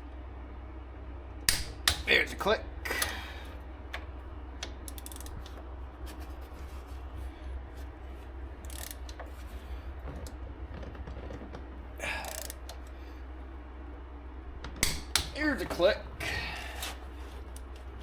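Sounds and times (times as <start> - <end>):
torque wrench ratchet clicks: 4.6 - 5.6, 8.6 - 9.2, 12.1 - 12.9.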